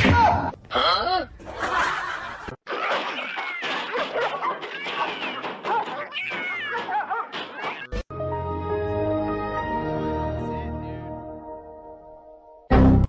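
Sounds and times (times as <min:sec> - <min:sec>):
cats meowing and yowling: 0:03.1 - 0:08.0.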